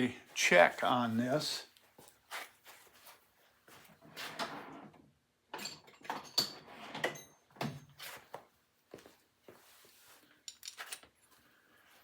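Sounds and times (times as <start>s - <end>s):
metal tools knocking and clattering: 5.5s - 7.4s, 10.5s - 11.0s.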